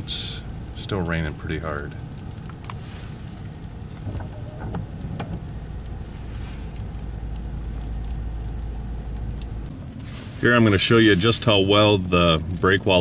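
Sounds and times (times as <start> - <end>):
low rumble inside car cabin: 0.0 - 13.0
rain ticking on windshield: 0.0 - 13.0.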